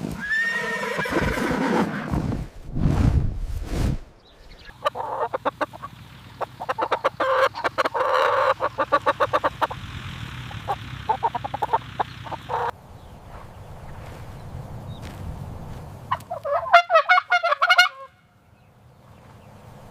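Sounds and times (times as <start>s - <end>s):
chickens clucking: 4.4s - 12.8s, 16.1s - 18.1s
chicken squawk: 4.5s - 9.8s, 10.5s - 12.7s, 16.1s - 18.2s.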